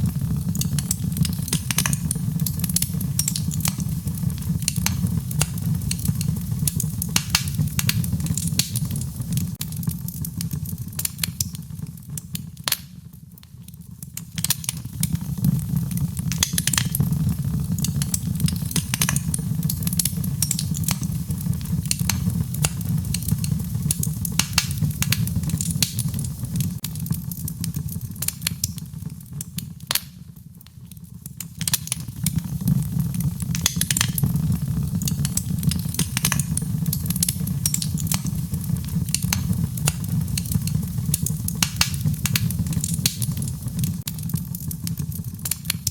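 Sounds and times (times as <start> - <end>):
fireplace fire crackling and popping: 0.0 - 45.9
rain: 31.7 - 45.9.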